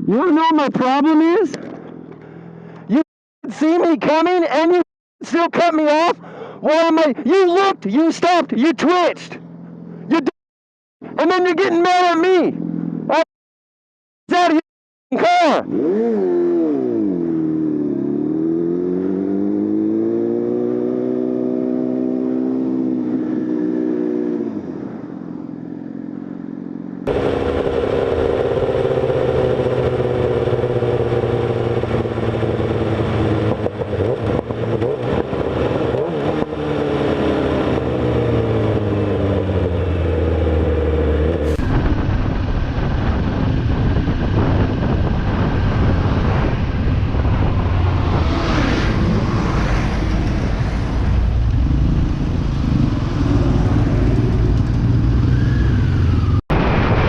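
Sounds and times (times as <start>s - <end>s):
road and wind noise: 0.0s - 10.3s, 11.0s - 13.2s, 14.3s - 57.0s
motorcycle engine accelerating: 0.8s - 2.6s, 15.6s - 56.4s.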